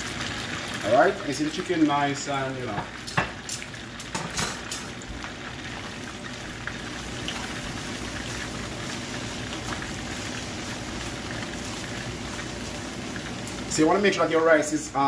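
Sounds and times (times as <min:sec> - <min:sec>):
rice sizzling in frying pan: 0:00.0 - 0:15.0.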